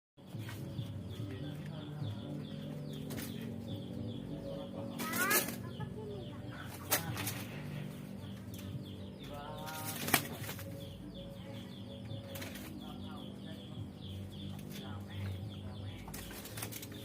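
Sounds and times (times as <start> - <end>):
bird wings flapping: 9.7 - 10.8, 16.1 - 17.0.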